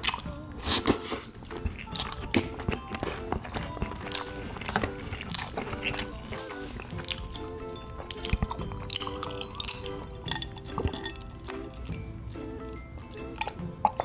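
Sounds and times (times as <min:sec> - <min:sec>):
mouth clicks and smacks chewing: 0:00.0 - 0:12.0, 0:13.2 - 0:14.0
soft background music: 0:00.0 - 0:14.0.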